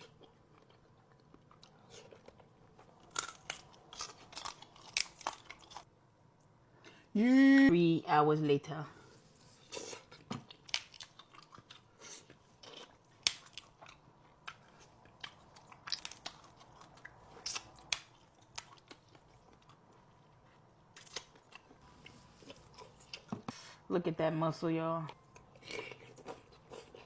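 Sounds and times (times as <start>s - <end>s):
chewing and mouth clicks: 9.7s - 21.8s.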